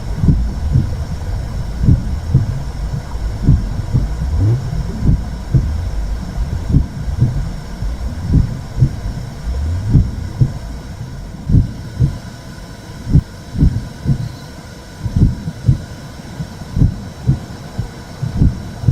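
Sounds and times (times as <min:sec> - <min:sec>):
low whooshing rumble: 0:00.0 - 0:14.2
slow heartbeat: 0:00.0 - 0:14.3, 0:15.0 - 0:18.9.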